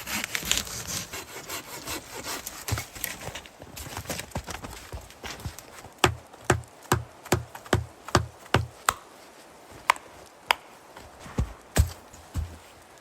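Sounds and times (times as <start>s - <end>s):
sharp knocks with dull thuds: 4.3s - 9.0s, 11.2s - 12.7s.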